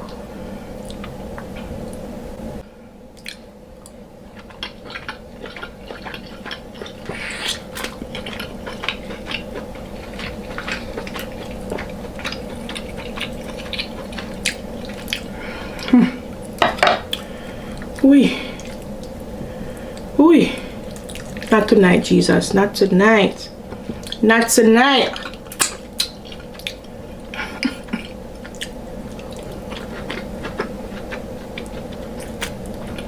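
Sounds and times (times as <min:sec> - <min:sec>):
wet chewing and lip smacking: 0:03.2 - 0:18.0, 0:20.8 - 0:21.6, 0:24.0 - 0:24.2, 0:25.1 - 0:33.0.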